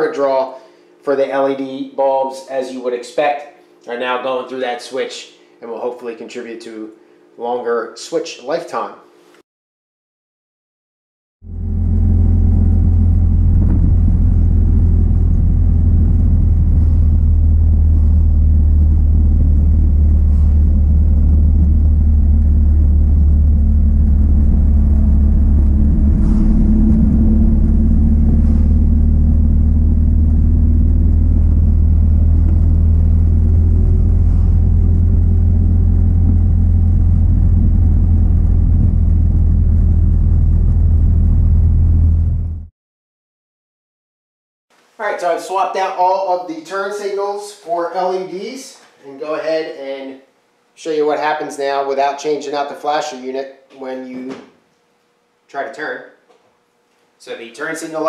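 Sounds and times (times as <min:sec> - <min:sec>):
car engine drone: 0:11.4 - 0:42.7.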